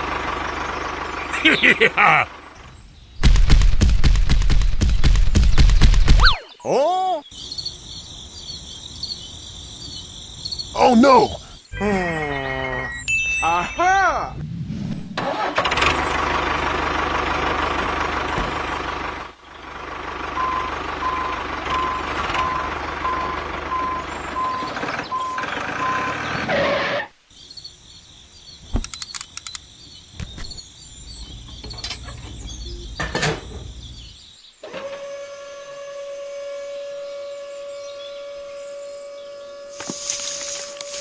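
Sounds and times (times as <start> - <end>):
vehicle engine running: 0.0 - 6.2, 15.2 - 26.4
high tones: 12.6 - 14.4
reversing alarm beeping: 20.4 - 26.2
clicks: 28.8 - 29.7.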